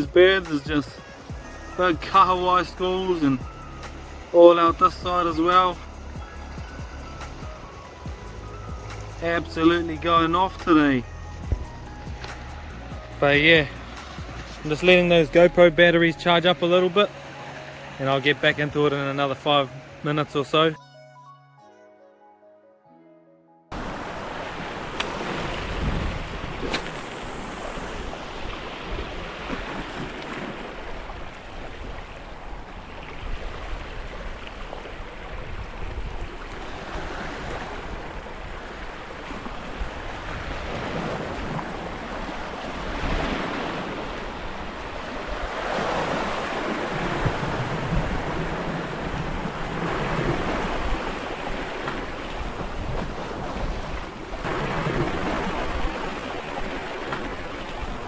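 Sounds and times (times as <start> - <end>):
sea waves washing against rocks: 0.0 - 20.7, 23.8 - 58.0
wind on microphone: 23.8 - 58.0.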